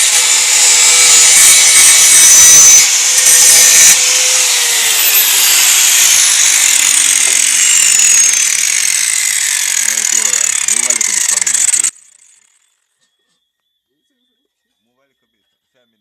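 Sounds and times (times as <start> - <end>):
angle grinder cutting steel: 0.0 - 12.7.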